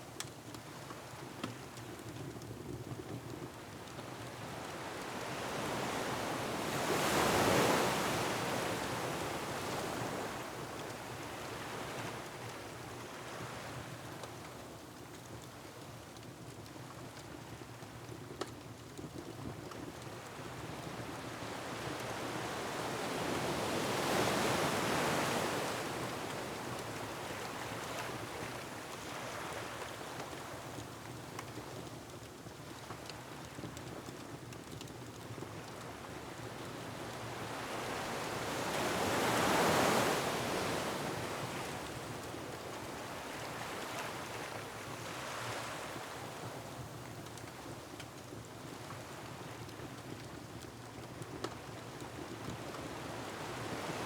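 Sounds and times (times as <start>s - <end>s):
wood fire crackling: 0.1s - 6.0s, 10.7s - 22.2s, 26.2s - 37.9s.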